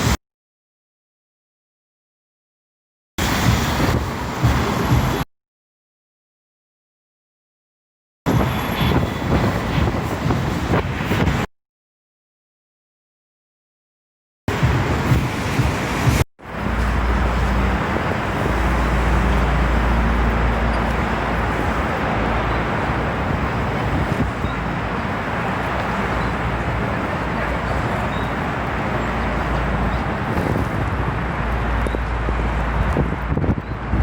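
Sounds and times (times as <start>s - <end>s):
wind rumbling on microphone: 3.2s - 5.2s, 8.3s - 11.5s, 14.5s - 34.0s
road traffic rushing: 3.2s - 5.3s, 8.3s - 11.5s, 14.5s - 34.0s.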